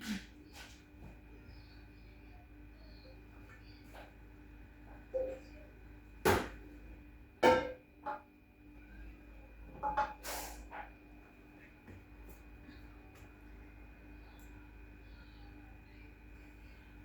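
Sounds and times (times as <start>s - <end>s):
faint steady hum: 0.2s - 17.0s.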